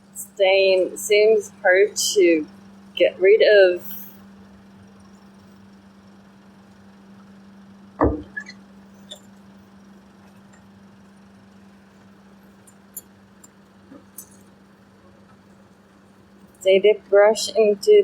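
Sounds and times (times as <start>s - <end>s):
steady low hum: 0.0s - 18.0s
loud knock: 8.0s - 8.4s.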